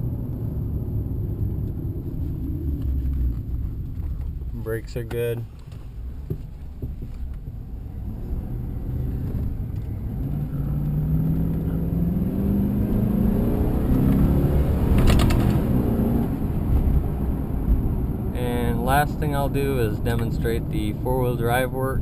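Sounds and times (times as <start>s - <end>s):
truck engine accelerating: 7.6s - 21.1s.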